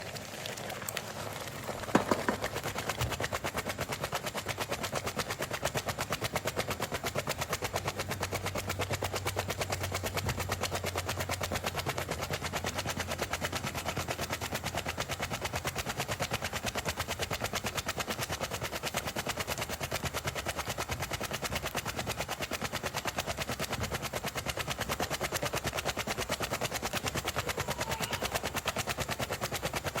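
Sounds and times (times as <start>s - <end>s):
sharp knock: 1.9s - 2.5s
cooking pot clattering: 1.9s - 2.7s.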